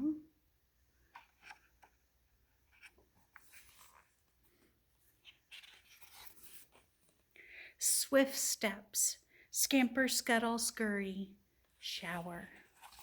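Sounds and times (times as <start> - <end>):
page turning: 1.2 - 1.9, 2.7 - 4.4, 5.2 - 7.2, 12.6 - 13.0.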